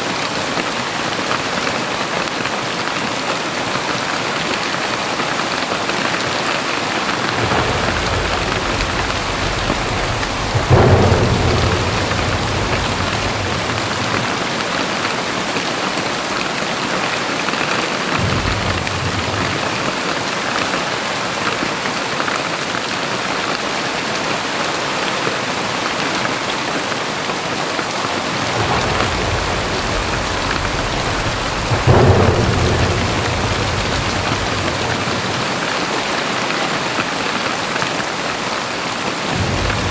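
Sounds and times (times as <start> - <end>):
heavy rain pouring: 0.0 - 39.9
sharp thunder claps: 5.9 - 20.9, 27.6 - 37.2, 39.2 - 39.9
thunder rumbling: 6.2 - 16.4, 17.9 - 20.3, 27.9 - 37.0, 39.2 - 39.9.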